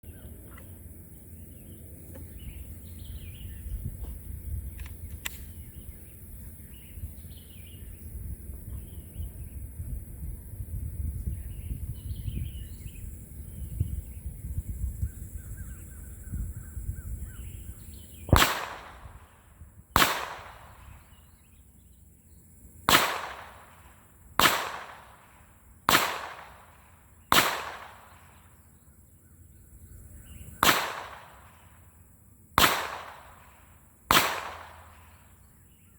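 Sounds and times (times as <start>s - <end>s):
birds chirping: 0.0s - 9.9s, 11.1s - 18.7s, 20.7s - 22.7s, 28.2s - 30.8s
pistol shots echoing: 18.3s - 19.4s, 20.0s - 21.2s, 22.9s - 28.5s, 30.6s - 31.7s, 32.6s - 35.2s.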